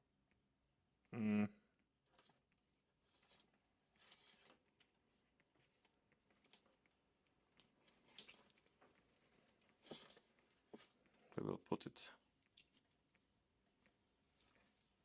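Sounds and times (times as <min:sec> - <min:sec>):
faint clicks of small parts: 0:00.0 - 0:15.0
rustles of small parts: 0:07.5 - 0:11.4.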